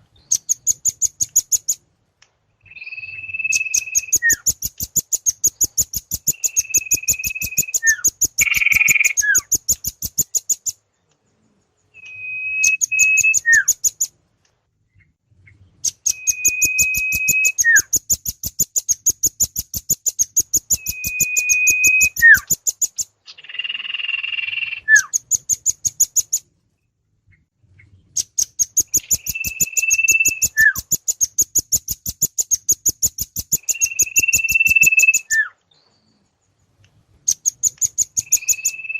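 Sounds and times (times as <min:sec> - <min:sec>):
small birds chattering trills: 0:00.0 - 0:01.8, 0:02.6 - 0:14.1, 0:14.9 - 0:26.5, 0:27.4 - 0:38.9
bird whistle sliding down: 0:06.3 - 0:09.4, 0:16.1 - 0:17.9, 0:20.8 - 0:22.5, 0:28.9 - 0:30.8, 0:33.6 - 0:35.5.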